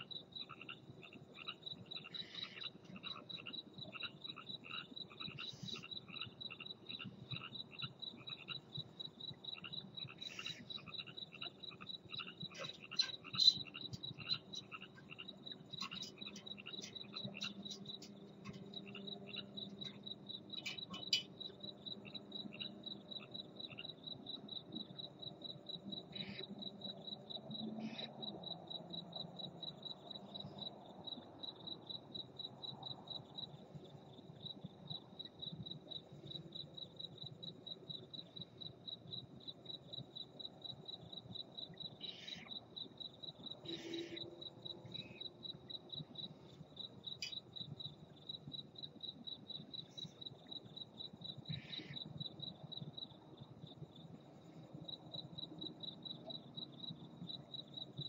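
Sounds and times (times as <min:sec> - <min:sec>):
cricket chirping: 0:00.0 - 0:58.0.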